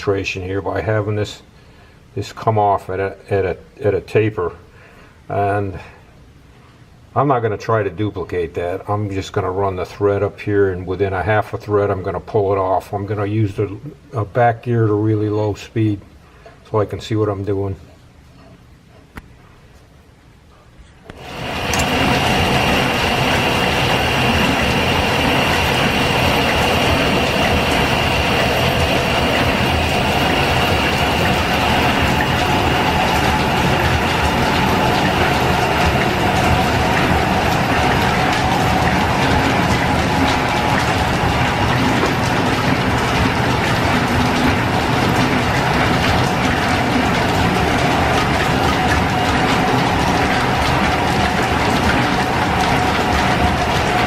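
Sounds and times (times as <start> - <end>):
metal lathe running: 21.1 - 54.0.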